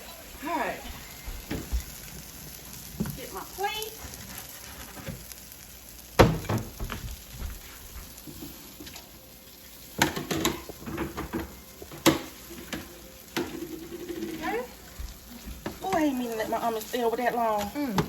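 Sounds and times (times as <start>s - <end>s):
omelet sizzling in a pan: 0.0s - 18.0s
plates and utensils clattering: 10.0s - 14.7s.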